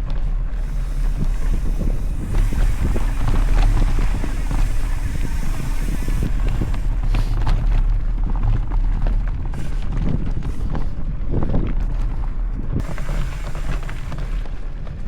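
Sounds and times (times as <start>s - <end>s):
bike rattling on dirt trail: 0.0s - 15.0s
wind buffeting microphone: 0.0s - 15.0s.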